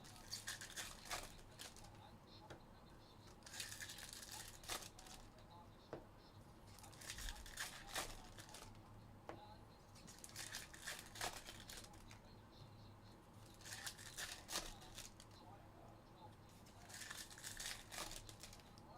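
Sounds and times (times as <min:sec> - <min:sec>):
wrappers crinkling and tearing: 0:00.0 - 0:01.9, 0:03.3 - 0:05.3, 0:06.7 - 0:08.8, 0:10.0 - 0:12.2, 0:13.4 - 0:15.2, 0:16.6 - 0:18.8.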